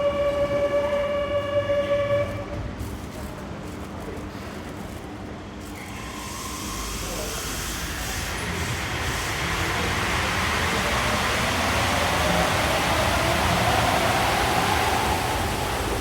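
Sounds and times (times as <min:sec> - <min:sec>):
train rolling hiss: 0:05.8 - 0:16.0.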